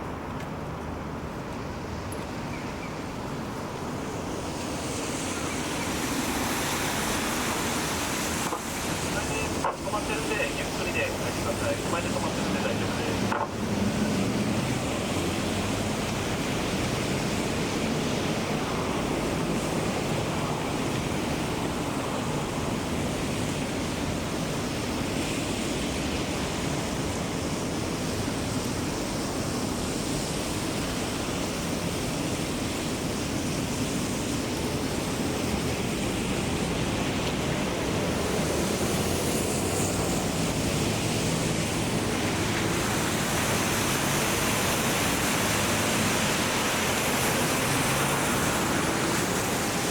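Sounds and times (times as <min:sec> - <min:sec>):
heavy rain hissing: 0:03.4 - 0:49.9.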